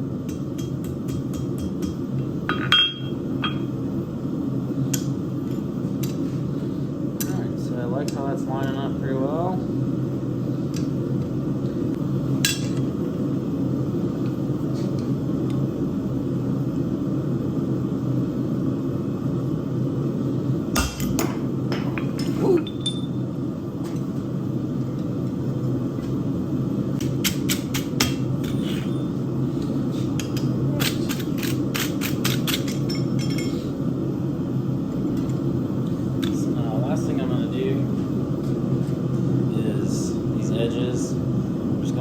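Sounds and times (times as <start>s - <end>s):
steady low hum: 0.0s - 42.0s
hammer striking steel on anvil: 0.3s - 3.7s.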